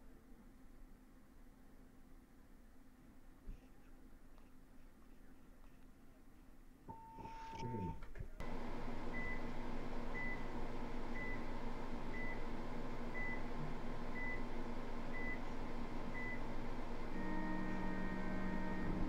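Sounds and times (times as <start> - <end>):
steady low hum: 0.0 - 19.0
low buzzer tone: 16.1 - 19.0.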